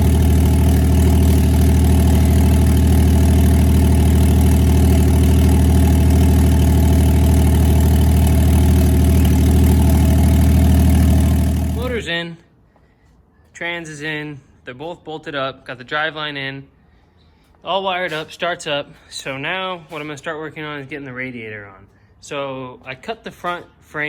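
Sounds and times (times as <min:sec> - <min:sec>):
car engine idling: 0:00.0 - 0:12.1.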